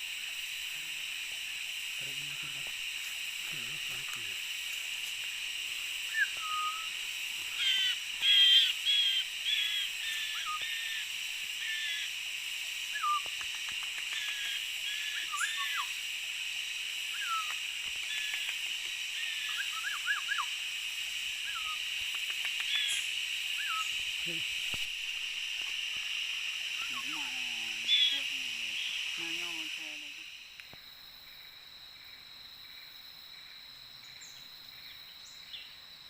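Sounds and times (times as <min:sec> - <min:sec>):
steady high-pitched hiss: 0:00.0 - 0:36.0
bird whistling and chirping: 0:06.1 - 0:07.0, 0:12.9 - 0:13.3, 0:14.9 - 0:15.9, 0:17.2 - 0:18.3, 0:19.2 - 0:20.5, 0:21.5 - 0:21.8, 0:23.6 - 0:24.0.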